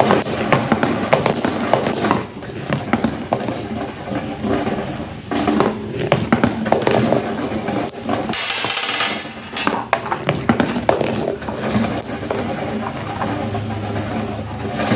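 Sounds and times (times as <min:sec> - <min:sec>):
marbles rolling on a track: 0:00.0 - 0:14.9
marbles clicking: 0:06.0 - 0:14.0.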